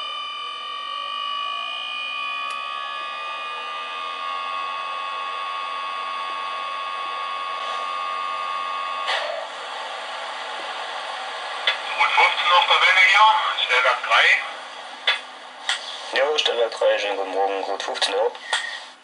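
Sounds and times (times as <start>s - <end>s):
high electrical whine: 0.0s - 18.3s
rushing fan-like noise: 7.8s - 16.4s.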